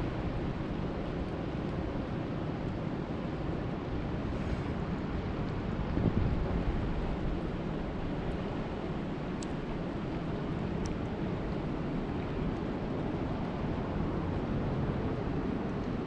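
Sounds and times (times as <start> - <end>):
faint high ticks: 9.4 - 9.6, 10.8 - 11.0.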